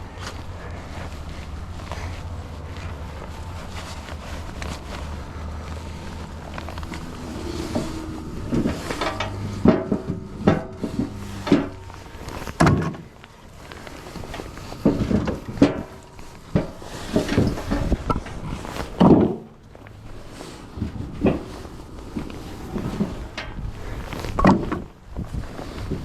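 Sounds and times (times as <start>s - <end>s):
low steady hum: 0.0s - 26.0s
firewood landing with wooden knocks: 12.5s - 13.1s, 19.0s - 19.5s.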